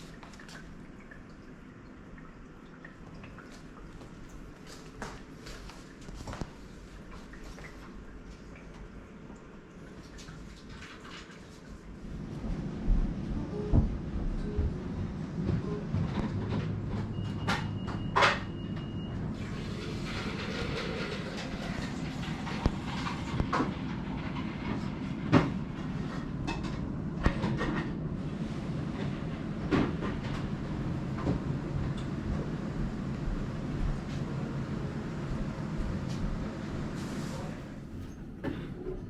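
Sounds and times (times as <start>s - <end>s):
steady low hum: 11.7s - 39.0s.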